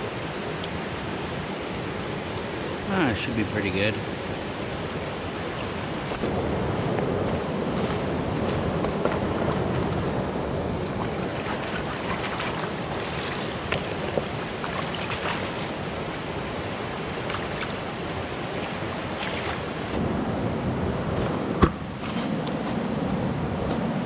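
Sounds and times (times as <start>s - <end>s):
stream water rushing: 0.0s - 6.3s, 9.1s - 20.0s.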